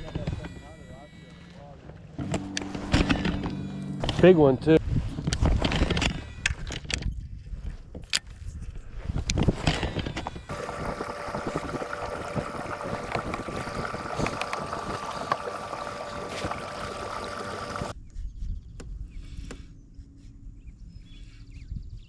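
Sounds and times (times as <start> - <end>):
scattered ticks: 10.5 - 17.9.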